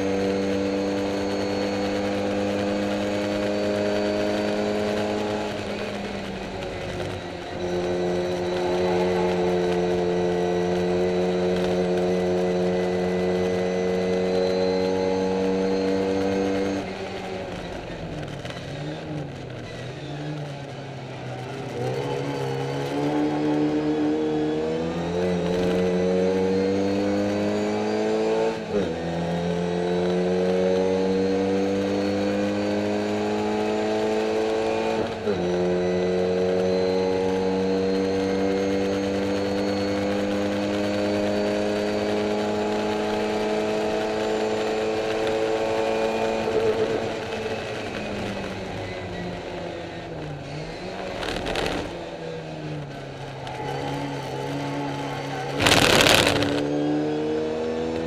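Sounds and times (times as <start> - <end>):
car engine under full throttle: 0.0 - 58.0
gear upshifts: 42.1 - 58.0.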